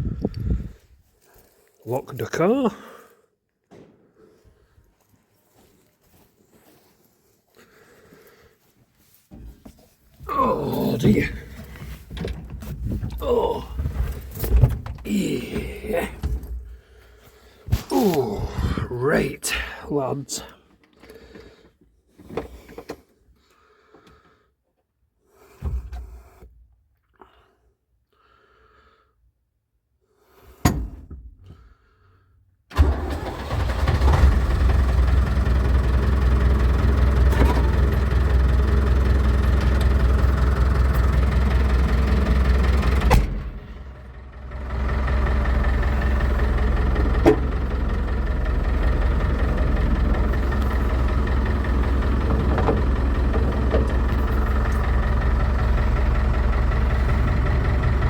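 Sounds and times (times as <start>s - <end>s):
diesel tractor engine running: 10.2s - 17.0s, 17.6s - 20.5s, 32.7s - 58.0s.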